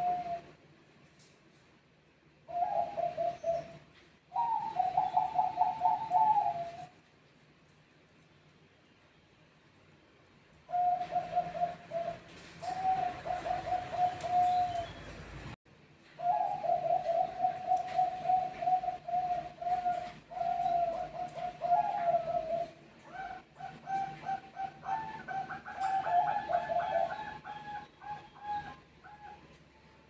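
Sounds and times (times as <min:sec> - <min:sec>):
doves cooing: 0:00.0 - 0:00.5, 0:02.5 - 0:07.0, 0:10.7 - 0:15.5, 0:16.2 - 0:29.6.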